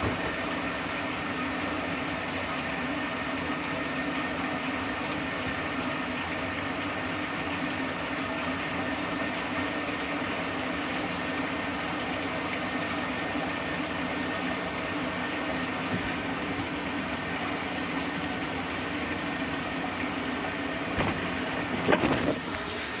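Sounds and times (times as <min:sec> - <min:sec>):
knocks and clatter: 0:00.0 - 0:00.5, 0:20.9 - 0:22.6
washing machine motor hum: 0:00.0 - 0:23.0.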